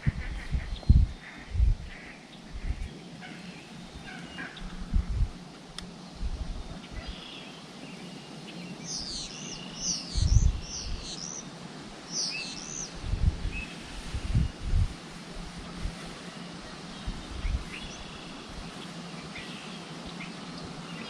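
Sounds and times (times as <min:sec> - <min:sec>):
low rumbling bumps on microphone: 0:00.0 - 0:02.0
steady outdoor hiss: 0:00.0 - 0:21.0
songbird chirping: 0:00.3 - 0:11.5, 0:12.1 - 0:14.8, 0:15.8 - 0:21.0.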